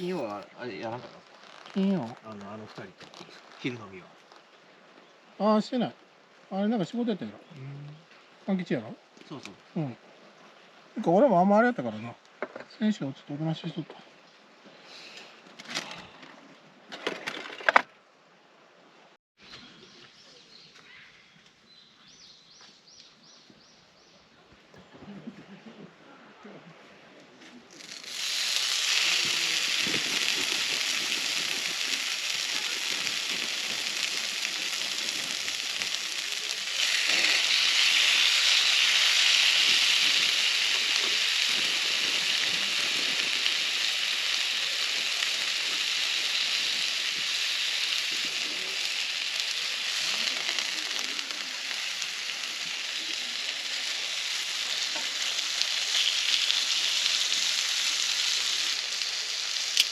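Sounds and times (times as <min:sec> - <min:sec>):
food sizzling in a pan: 0:00.0 - 0:02.2, 0:27.8 - 0:59.9.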